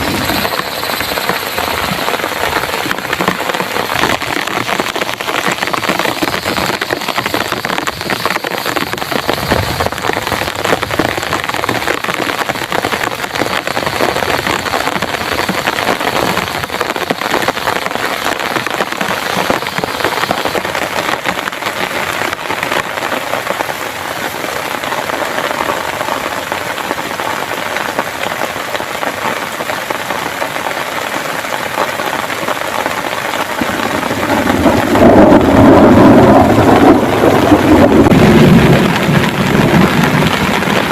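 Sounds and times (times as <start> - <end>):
heavy rain pouring: 0.0 - 40.9
low rumble of thunder: 33.5 - 40.9.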